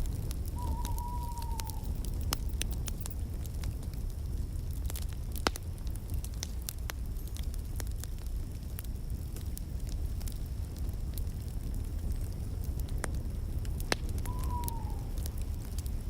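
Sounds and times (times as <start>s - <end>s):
fire crackling and popping: 0.0s - 16.0s
fire rumbling: 0.0s - 16.0s
thin whistle: 0.6s - 3.0s, 14.2s - 15.1s.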